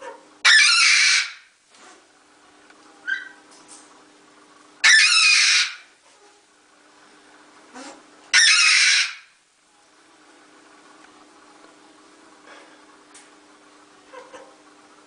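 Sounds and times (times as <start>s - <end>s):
bird screeching: 0.4s - 1.5s, 3.1s - 3.4s, 4.8s - 5.9s, 8.3s - 9.3s
steady low hum: 1.3s - 8.6s, 9.2s - 15.0s.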